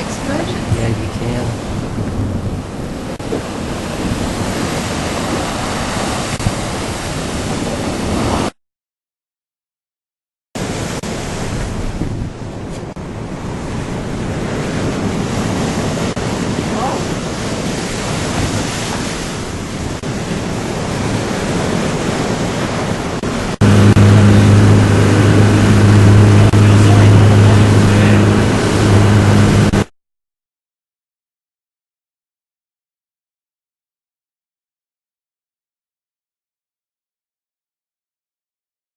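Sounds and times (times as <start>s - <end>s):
boat motor droning: 0.0s - 8.5s, 10.6s - 29.9s
wind buffeting microphone: 0.0s - 8.5s, 10.6s - 29.9s
ocean waves: 0.0s - 8.6s, 10.6s - 29.9s.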